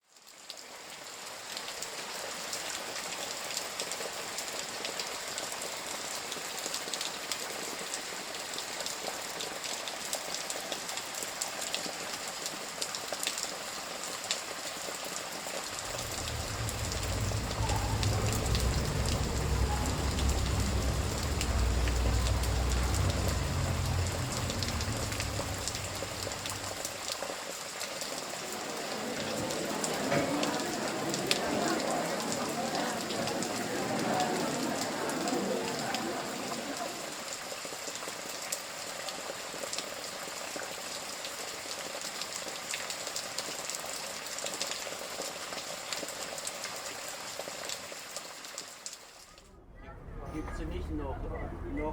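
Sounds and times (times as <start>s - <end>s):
rain falling: 0.0s - 49.7s
deep low rumble: 15.8s - 27.1s, 49.4s - 51.9s.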